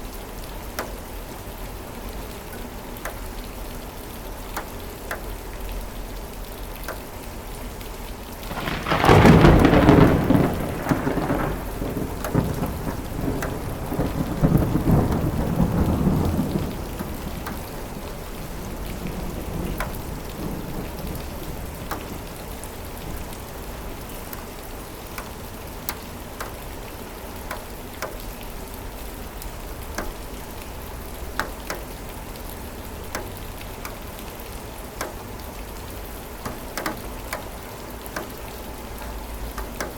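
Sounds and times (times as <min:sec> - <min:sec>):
steady rain: 0:00.0 - 0:39.9
thunderclap rumbling: 0:08.4 - 0:23.6.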